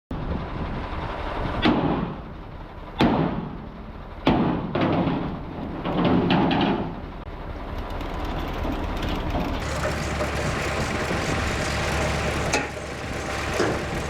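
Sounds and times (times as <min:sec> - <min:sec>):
workshop noise: 0:09.6 - 0:14.0.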